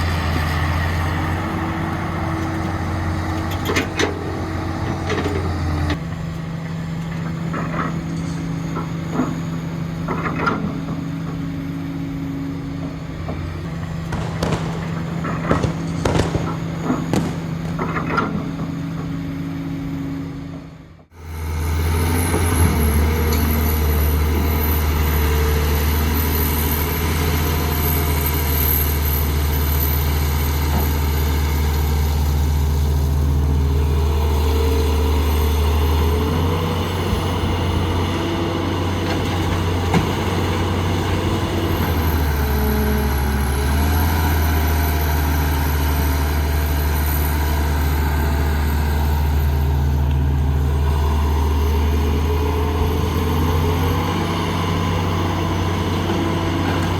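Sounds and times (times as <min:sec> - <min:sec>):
heavy diesel engine running: 0:00.0 - 0:56.9.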